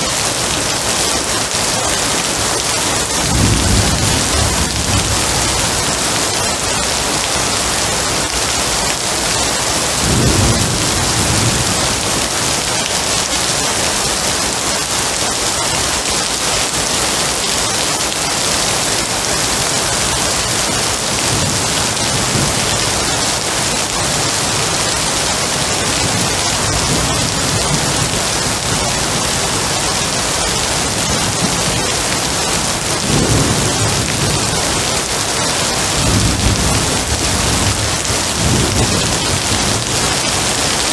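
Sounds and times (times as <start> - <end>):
steady rain: 0.0 - 40.9
low rumbles of thunder: 3.2 - 6.4, 9.9 - 12.2, 31.0 - 34.8, 35.8 - 40.5.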